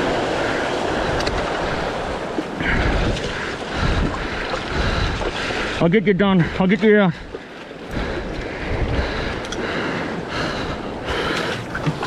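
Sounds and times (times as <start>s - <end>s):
sea surf washing in: 0.0s - 5.8s
wind buffeting microphone: 0.0s - 12.0s.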